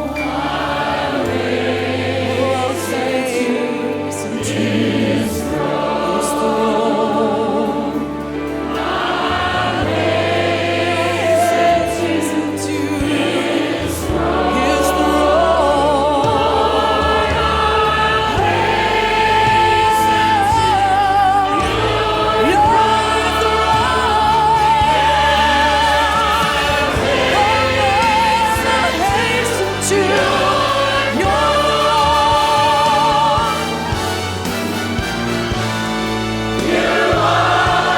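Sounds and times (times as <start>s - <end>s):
congregation and choir singing: 0.0s - 37.9s
instrumental accompaniment: 0.0s - 37.9s.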